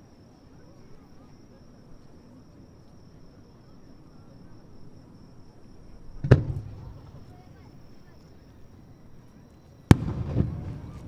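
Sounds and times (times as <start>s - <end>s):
insects trilling: 0.0s - 11.0s
distant firework shell boom: 6.2s - 7.4s, 9.9s - 11.0s.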